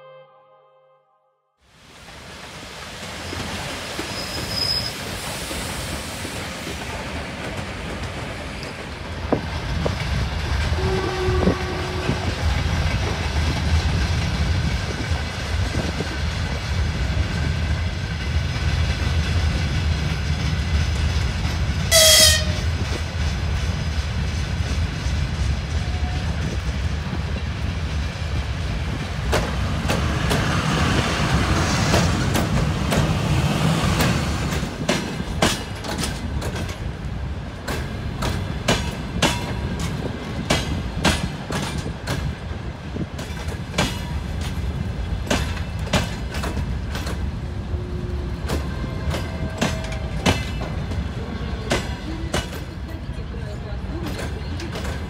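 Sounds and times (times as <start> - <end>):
high-pitched train horn blast: 0.0 - 1.6, 10.7 - 12.3, 21.9 - 22.7, 47.6 - 50.3
train rumbling on rails: 1.7 - 55.0.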